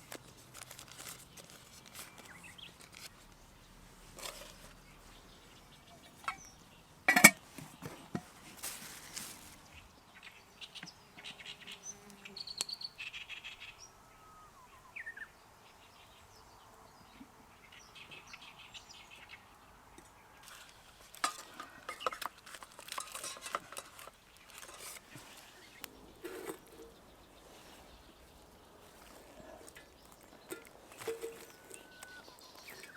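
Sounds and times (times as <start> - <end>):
camp cookware clicking and knocking: 5.9 - 6.5, 7.1 - 8.3, 20.4 - 25.2, 25.8 - 27.0, 30.2 - 32.9.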